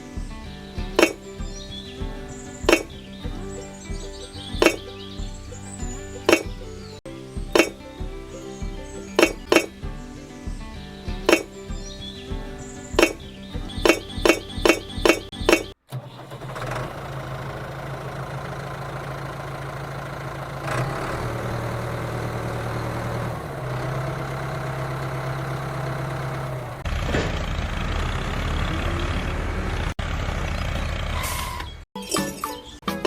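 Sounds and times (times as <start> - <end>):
mini tractor engine drone: 15.4 - 31.7.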